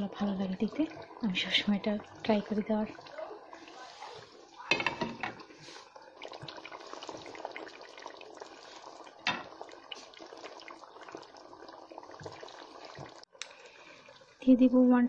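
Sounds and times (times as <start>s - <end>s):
curry bubbling in a pot: 0.0s - 14.9s.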